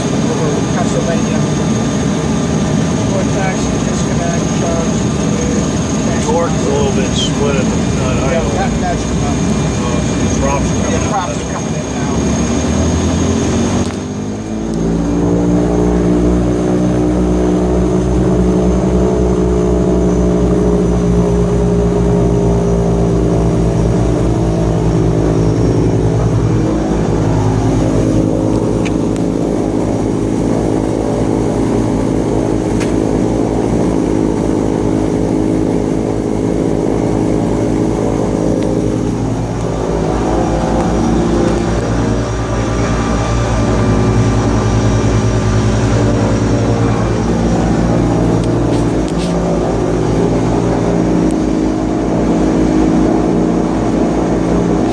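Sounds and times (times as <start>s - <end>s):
propeller engine running: 0.0s - 54.9s.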